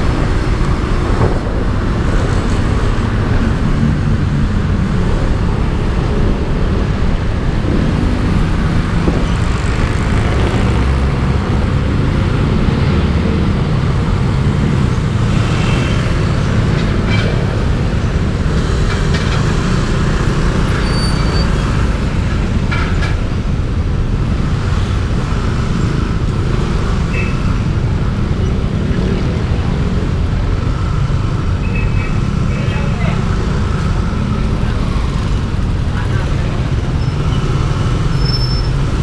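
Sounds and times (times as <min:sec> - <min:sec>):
wind on microphone: 0:00.0 - 0:14.1
road traffic: 0:00.0 - 0:39.0.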